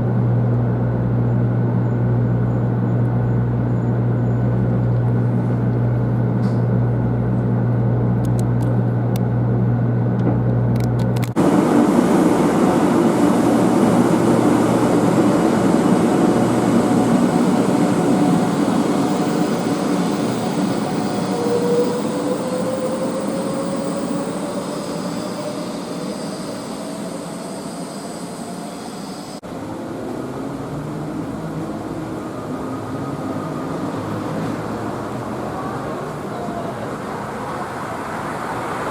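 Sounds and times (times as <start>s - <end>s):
train rumble and rushing: 10.1s - 38.9s
faint whine rising in pitch: 11.4s - 34.2s.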